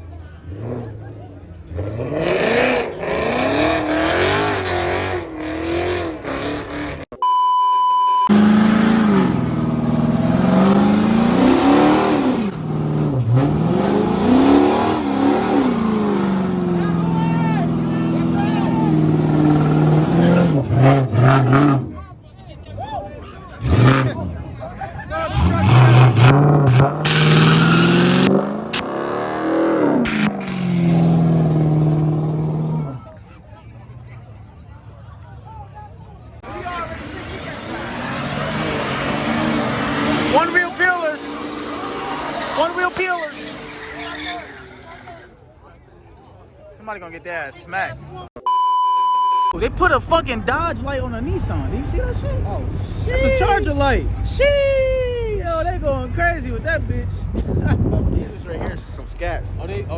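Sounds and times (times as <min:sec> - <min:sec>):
car engines revving: 0:00.0 - 0:07.2, 0:08.3 - 0:45.6, 0:49.6 - 0:59.9
steady beep: 0:07.2 - 0:08.4, 0:48.4 - 0:49.6.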